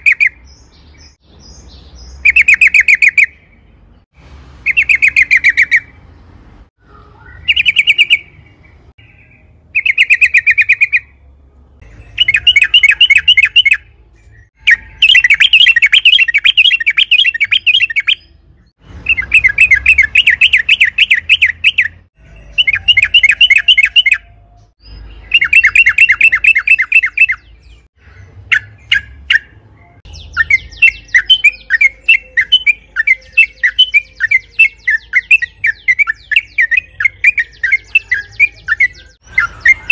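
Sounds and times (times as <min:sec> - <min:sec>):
bird chirps: 0:00.0 - 0:39.9
bird singing bubbling notes: 0:11.8 - 0:39.9.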